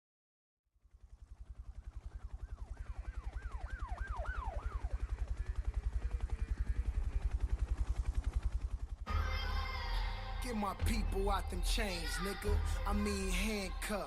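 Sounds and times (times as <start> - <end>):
low throbbing pulse: 0.9 - 13.9
siren wailing: 1.9 - 7.5.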